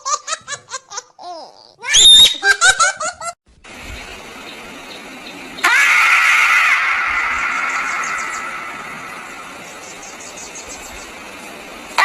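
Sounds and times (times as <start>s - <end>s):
small child laughing: 0.0s - 3.4s
faint steady noise: 3.5s - 12.0s.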